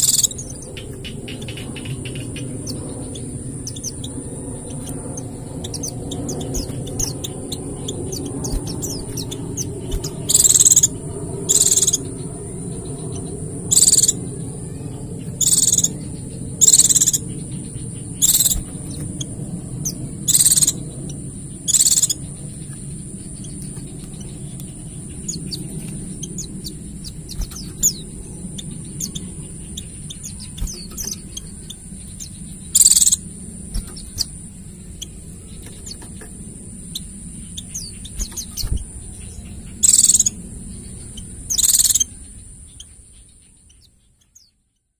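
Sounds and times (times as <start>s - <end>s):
sharp high bird calls: 0.0s - 36.2s, 36.8s - 43.0s
low steady hum: 0.0s - 44.9s
small birds twittering trill: 0.0s - 44.9s.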